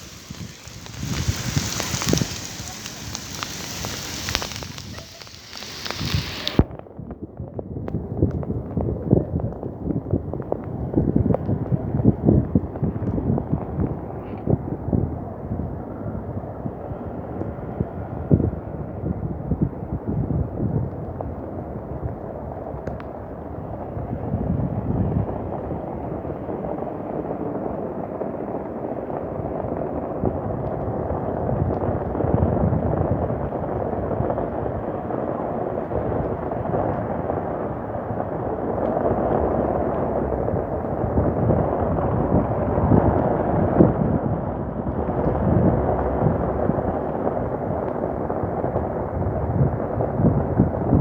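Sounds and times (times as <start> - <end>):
heavy rain: 0.0 - 6.7, 31.0 - 51.0
thunder rumbles: 0.0 - 6.7, 29.3 - 51.0.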